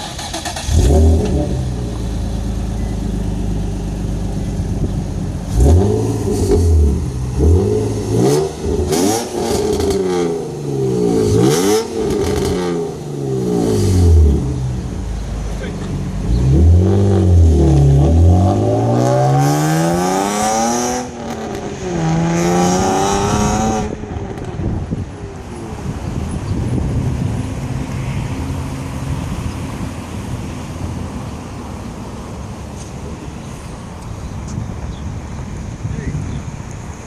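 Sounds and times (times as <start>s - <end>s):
car engine revving: 0.0s - 24.7s.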